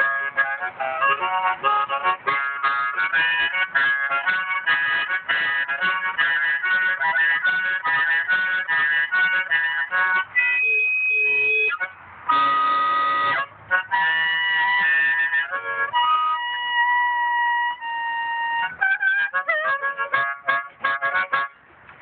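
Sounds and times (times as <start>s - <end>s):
harmonica playing: 0.0s - 21.6s.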